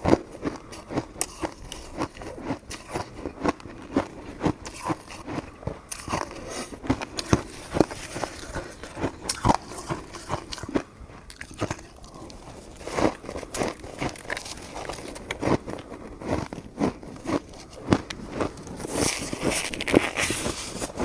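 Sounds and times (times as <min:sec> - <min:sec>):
chewing mouth clicks and smacks: 0:00.5 - 0:12.5.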